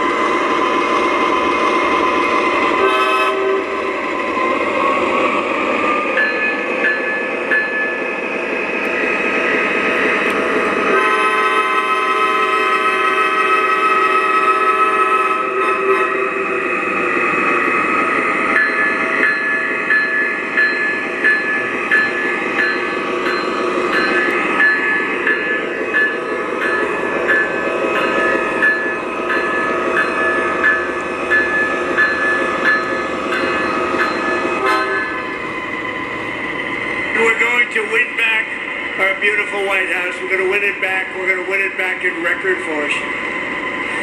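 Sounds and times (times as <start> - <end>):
model locomotive diesel engine sound: 0.0 - 44.0
locomotive bell ringing: 6.0 - 8.3, 18.0 - 35.6.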